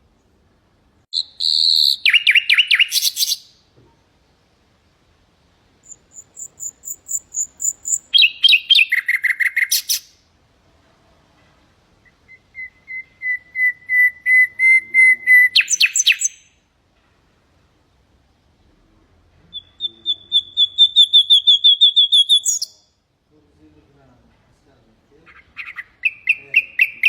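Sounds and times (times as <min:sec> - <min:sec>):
nightingale singing: 0:01.1 - 0:03.7, 0:05.8 - 0:10.3, 0:12.0 - 0:16.7, 0:19.4 - 0:23.0, 0:25.2 - 0:27.0.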